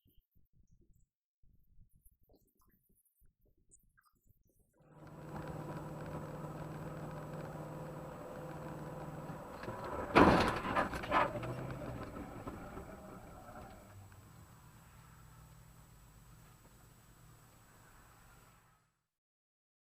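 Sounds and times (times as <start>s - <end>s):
car engine running: 4.9s - 15.3s.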